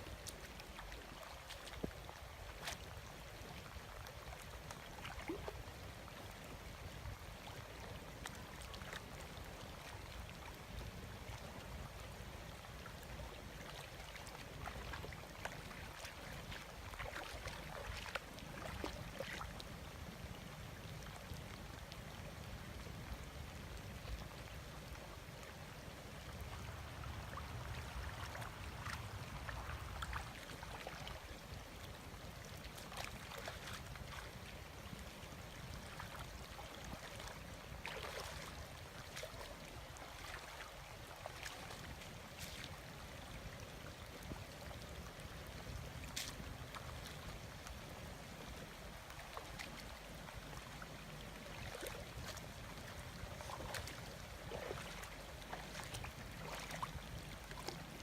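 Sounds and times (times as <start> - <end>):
small splashes: 0.0 - 5.8, 13.0 - 19.8, 26.2 - 31.8, 32.4 - 58.0
shallow water sloshing: 14.0 - 19.5, 35.8 - 42.7, 51.2 - 58.0.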